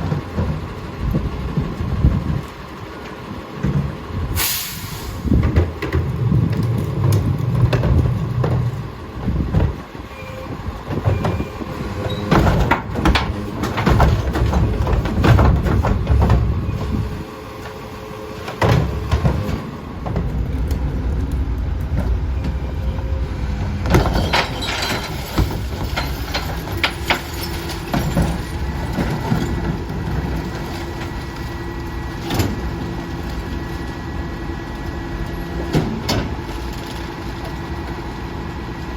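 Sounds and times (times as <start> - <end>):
garbage truck diesel engine: 0.0 - 38.9
loud clanks and knocks: 5.3 - 9.8, 10.8 - 17.0, 18.4 - 20.4, 23.6 - 31.1.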